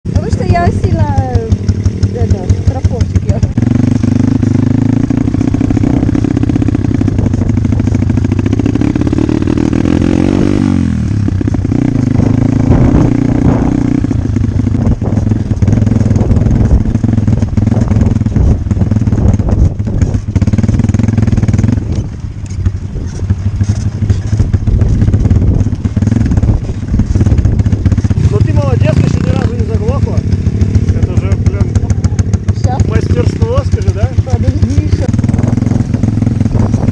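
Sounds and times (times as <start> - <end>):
dirt bike engine running: 0.0 - 36.9
clicks and clatter: 21.9 - 25.0.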